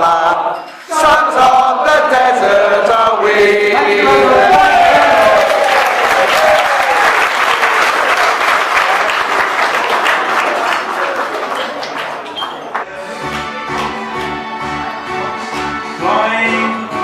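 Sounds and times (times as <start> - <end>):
singers holding a note: 0.0 - 5.8
audience applauding: 4.4 - 14.4.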